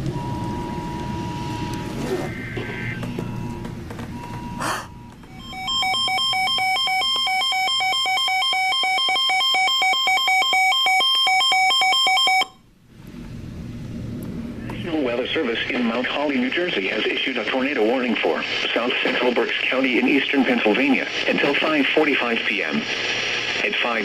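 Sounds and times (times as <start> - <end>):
rapid electronic alert beeping: 0.2 - 12.5.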